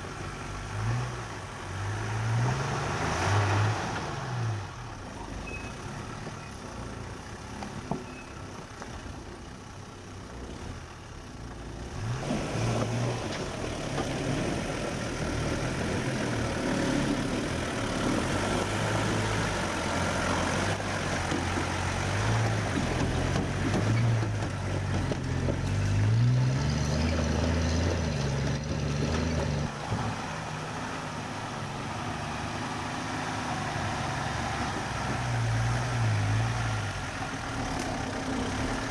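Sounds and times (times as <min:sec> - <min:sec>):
vehicle engine revving: 0:11.8 - 0:38.9.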